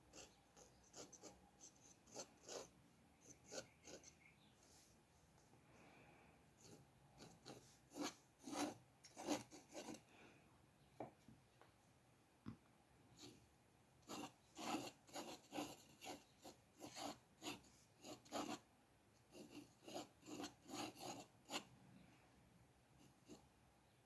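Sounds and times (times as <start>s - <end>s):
drawing tool scratching on paper: 0.1s - 4.3s, 6.6s - 10.0s, 14.0s - 18.6s, 19.3s - 21.7s.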